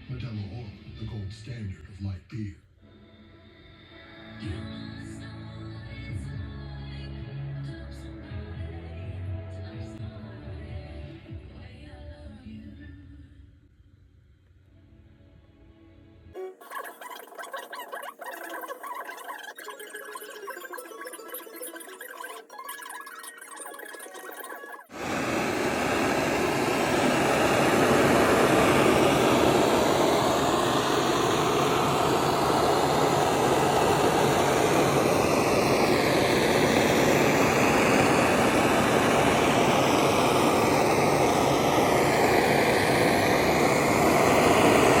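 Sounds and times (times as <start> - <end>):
machine rushing noise: 16.7 - 45.0.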